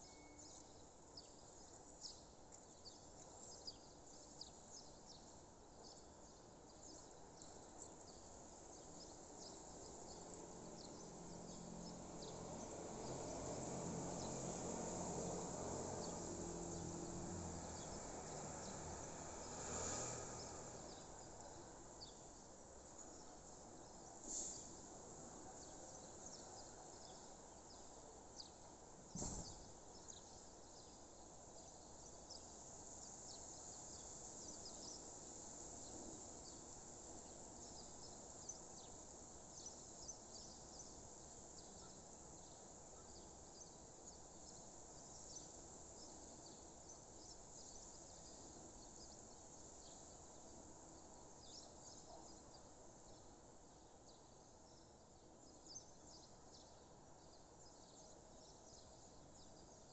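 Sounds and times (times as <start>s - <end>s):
birds and insects chirping: 0.0s - 28.6s, 29.2s - 59.9s
low steady background hiss: 20.2s - 59.9s.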